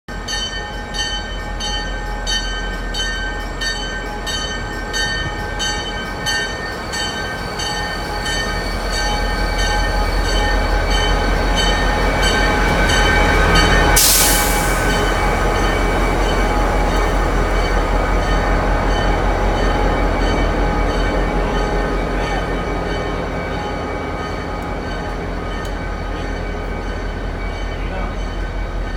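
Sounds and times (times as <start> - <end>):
diesel train engine rumbling: 0.1 - 28.9
train bell ringing: 0.1 - 28.9
air hiss: 14.0 - 15.2.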